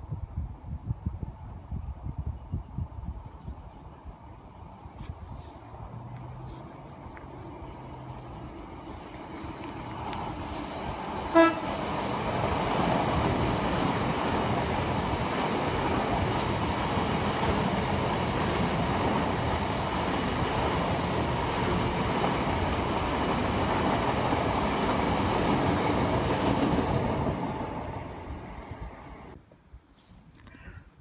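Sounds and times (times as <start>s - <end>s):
train wheels rumbling on rails: 7.2s - 29.4s.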